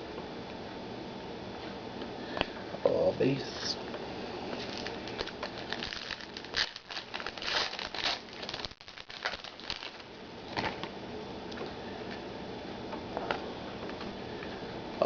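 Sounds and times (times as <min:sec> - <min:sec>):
card pack wrapper crinkling: 0:04.6 - 0:10.9.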